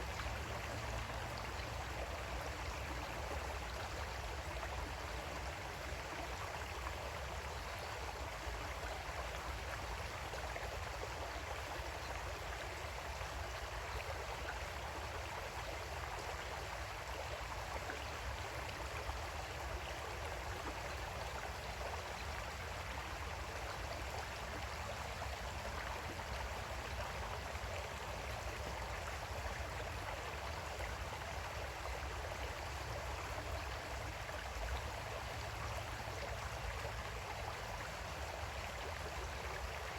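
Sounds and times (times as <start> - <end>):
creek water flowing over rocks: 0.0 - 39.9.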